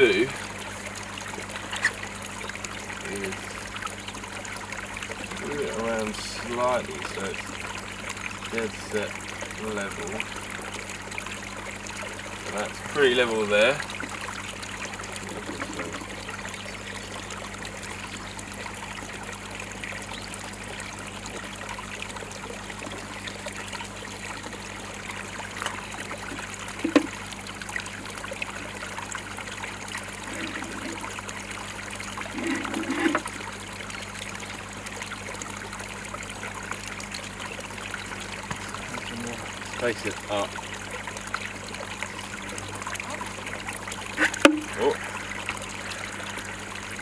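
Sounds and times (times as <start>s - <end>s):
water trickling into pond: 0.0s - 47.0s
scraping clatter: 32.3s - 33.3s.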